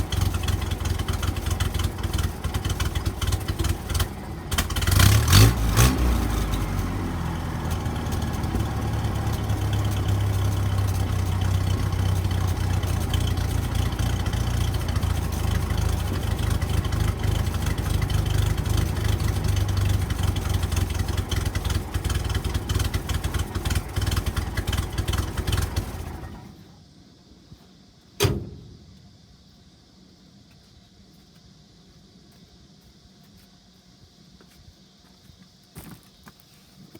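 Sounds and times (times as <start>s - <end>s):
car engine revving: 0.0s - 26.5s
car engine idling: 0.0s - 26.7s.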